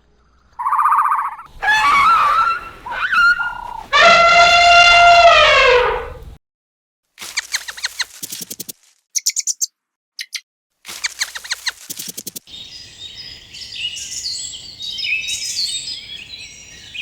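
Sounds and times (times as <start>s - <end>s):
birds chirping and twittering: 0.4s - 4.6s, 11.0s - 17.0s.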